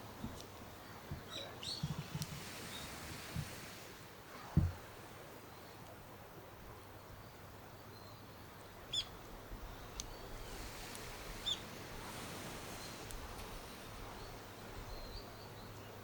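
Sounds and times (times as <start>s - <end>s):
faint steady hiss: 0.0s - 16.0s
bird calls: 0.2s - 3.0s, 8.9s - 10.6s, 11.3s - 16.0s.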